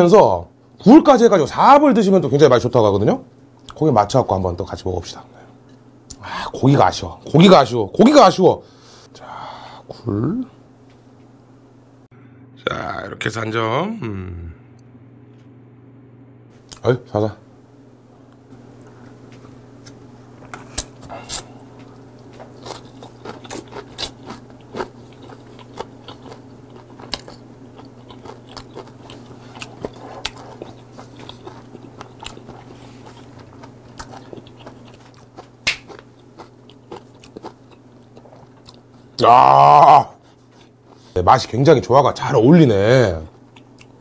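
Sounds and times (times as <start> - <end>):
steady low hum: 0.0 - 44.0
man chewing food: 18.8 - 39.2, 40.2 - 41.2, 43.3 - 44.0
crunches and clicks while chewing: 19.3 - 39.0, 43.3 - 44.0.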